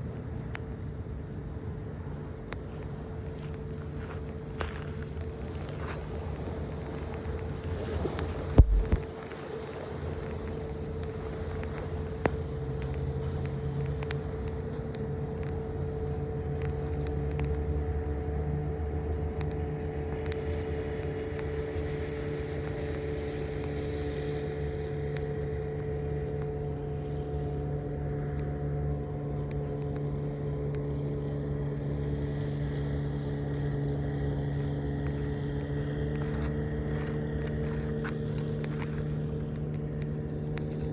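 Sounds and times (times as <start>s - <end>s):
steady motor hum: 0.0s - 40.9s
sharp clicks: 0.2s - 15.8s, 16.5s - 17.7s.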